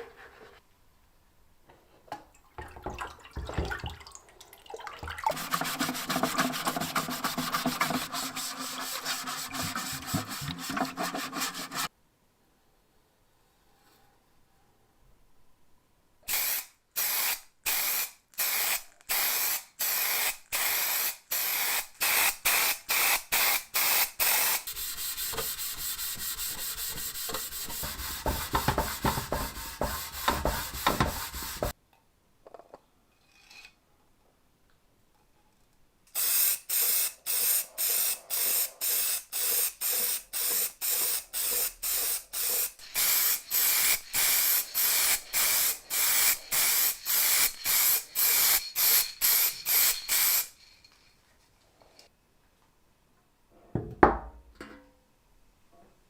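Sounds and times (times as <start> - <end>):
spray bursts: 16.3 - 31.8, 36.2 - 50.7
continuous hissing: 36.1 - 52.1.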